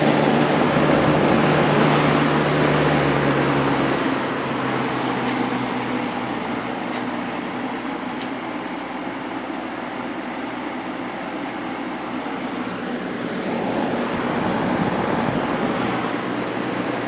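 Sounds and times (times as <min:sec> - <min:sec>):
box fan motor hum: 0:00.0 - 0:17.0.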